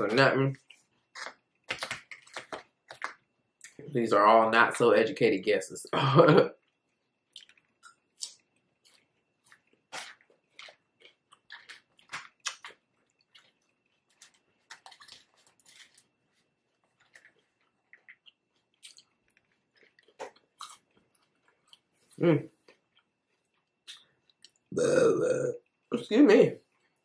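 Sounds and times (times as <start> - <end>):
person chewing food: 6.6 - 25.8.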